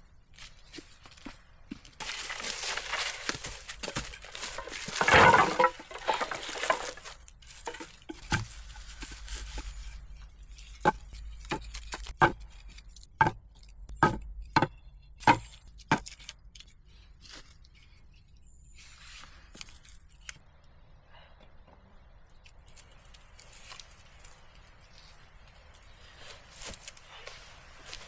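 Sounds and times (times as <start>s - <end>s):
crunching scraping rustle: 0.1s - 20.4s, 22.6s - 28.0s
sharp knocks: 14.0s - 16.0s.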